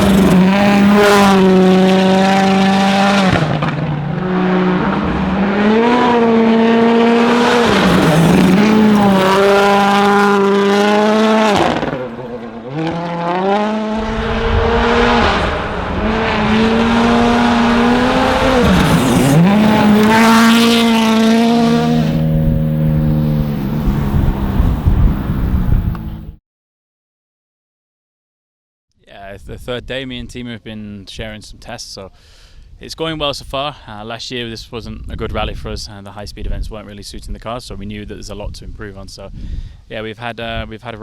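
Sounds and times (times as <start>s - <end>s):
rally car engine revving: 0.0s - 26.4s.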